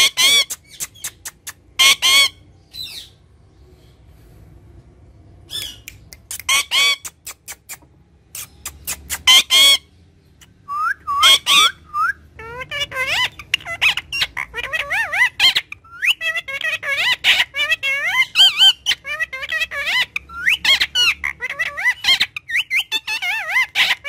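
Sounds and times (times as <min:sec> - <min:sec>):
parakeet squawking: 0:00.0 - 0:03.2, 0:05.5 - 0:24.0
parakeet warbling chatter: 0:00.0 - 0:03.2, 0:05.6 - 0:09.9, 0:11.1 - 0:24.0.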